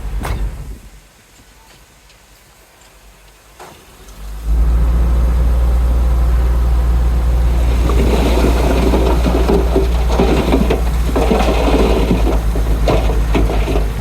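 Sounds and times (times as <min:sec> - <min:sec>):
heavy diesel engine droning: 0:04.5 - 0:14.0
clattering rattle: 0:07.5 - 0:14.0.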